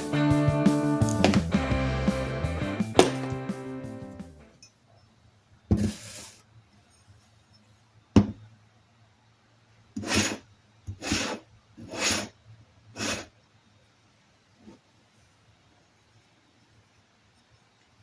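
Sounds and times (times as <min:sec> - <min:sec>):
sharp knock on workbench: 0:01.2 - 0:01.6, 0:03.0 - 0:03.5.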